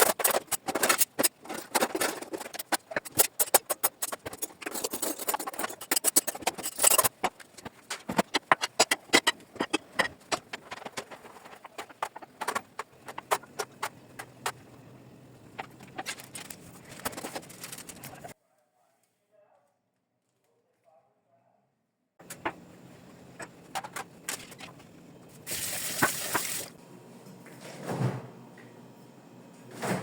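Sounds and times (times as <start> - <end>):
household objects clattering: 0.0 - 14.6, 15.5 - 18.3, 23.2 - 26.7.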